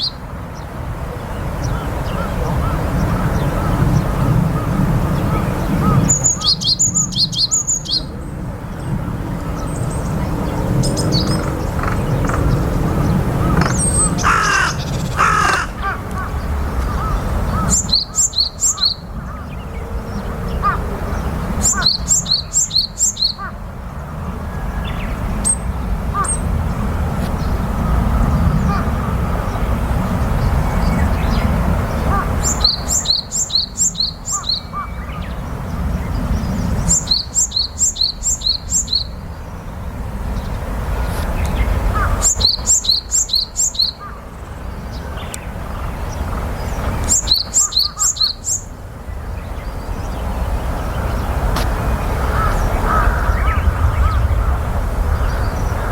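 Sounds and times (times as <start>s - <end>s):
steady low rumble: 0.8s - 23.0s, 48.8s - 55.9s.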